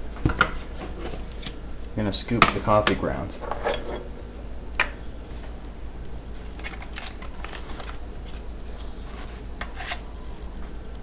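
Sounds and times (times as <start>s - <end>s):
low hum: 3.0s - 11.0s.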